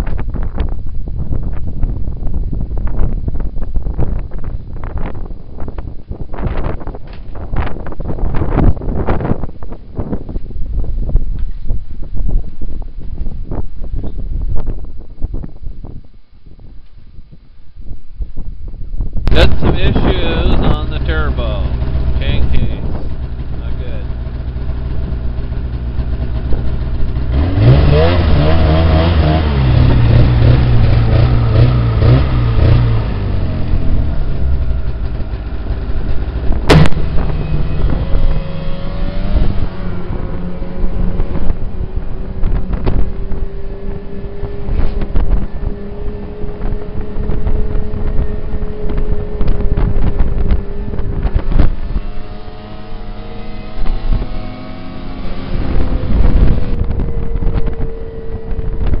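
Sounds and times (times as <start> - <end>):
snowmobile engine revving: 19.3 - 59.0.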